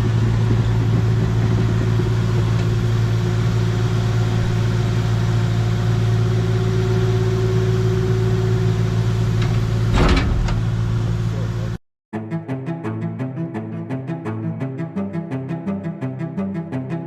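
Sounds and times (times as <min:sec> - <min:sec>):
engine humming: 0:00.0 - 0:11.8.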